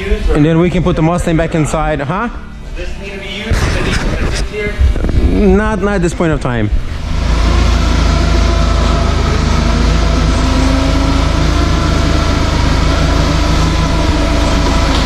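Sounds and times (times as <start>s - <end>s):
engine running steadily: 3.2s - 15.0s.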